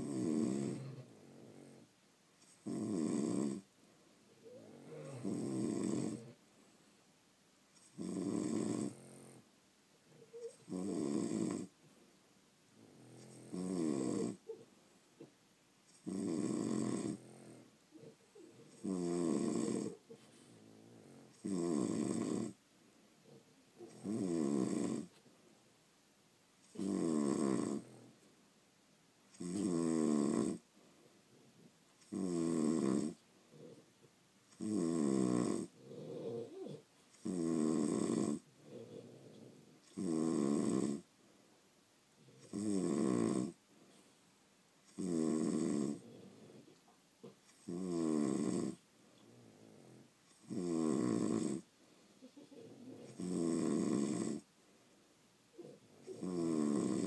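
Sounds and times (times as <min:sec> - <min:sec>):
dog snoring: 0:00.0 - 0:03.7, 0:04.4 - 0:06.4, 0:07.8 - 0:09.5, 0:10.1 - 0:11.8, 0:12.8 - 0:14.7, 0:15.9 - 0:22.6, 0:23.2 - 0:25.2, 0:26.6 - 0:28.2, 0:29.3 - 0:30.7, 0:32.0 - 0:33.9, 0:34.5 - 0:41.1, 0:42.2 - 0:43.6, 0:44.8 - 0:51.7, 0:52.5 - 0:54.5, 0:55.5 - 0:57.0.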